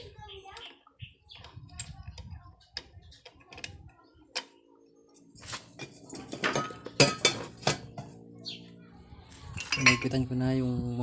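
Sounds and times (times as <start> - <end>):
metal tools and parts clinking: 5.4 - 8.1, 9.6 - 10.2.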